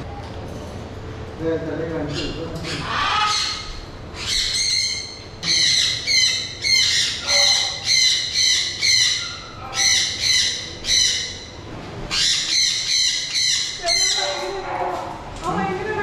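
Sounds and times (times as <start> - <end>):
cockatoo squawking: 2.1 - 14.8.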